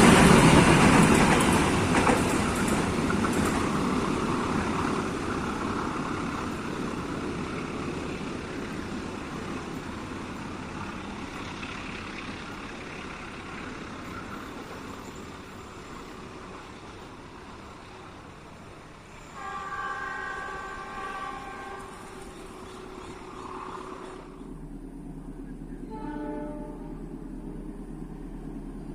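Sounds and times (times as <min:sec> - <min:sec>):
train rumble: 0:00.0 - 0:28.9
locomotive horn blast: 0:19.3 - 0:22.3, 0:25.8 - 0:27.1.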